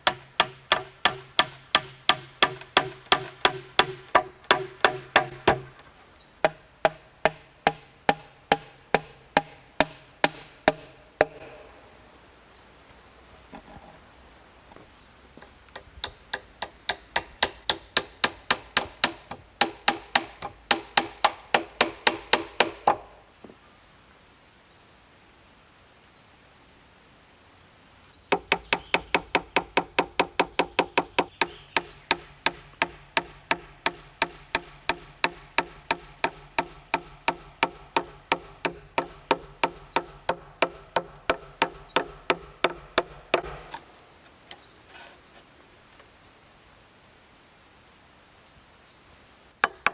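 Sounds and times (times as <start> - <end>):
tool striking wood: 0.0 - 5.8, 6.4 - 11.6, 15.7 - 23.1, 28.3 - 43.8, 49.6 - 49.9.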